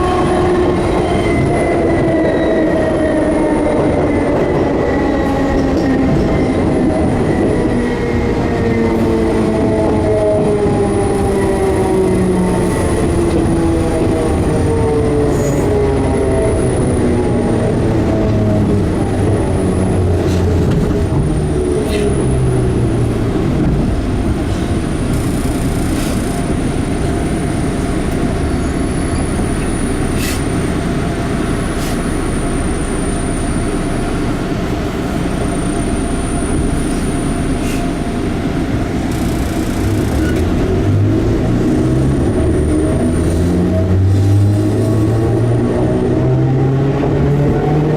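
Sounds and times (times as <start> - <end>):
train wheels rumbling on rail: 0.0 - 47.9
rail joint clicks: 3.8 - 7.7, 20.1 - 22.2, 24.0 - 26.8, 38.9 - 40.7
train motor whine: 35.6 - 41.0.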